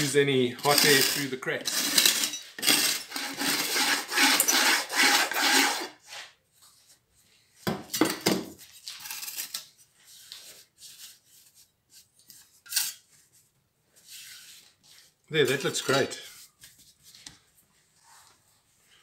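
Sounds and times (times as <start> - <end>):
scraping strokes on furnace top: 0.6 - 6.3.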